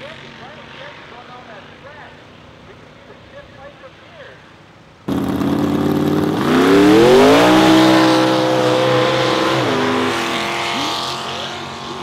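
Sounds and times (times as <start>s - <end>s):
race car engine revving: 5.1s - 12.0s.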